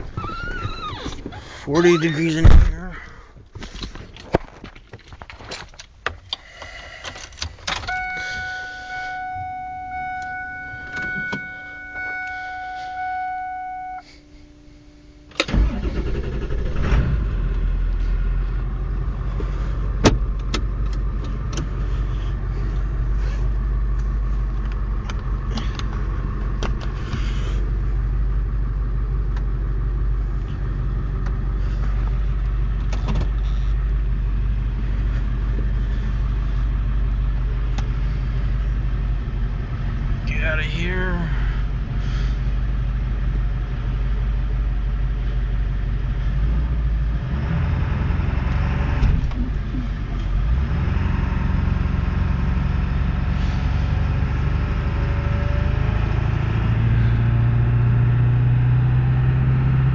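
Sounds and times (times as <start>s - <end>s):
car engine cranking and idling: 0.0s - 59.9s
electronic warning tone: 7.9s - 14.1s.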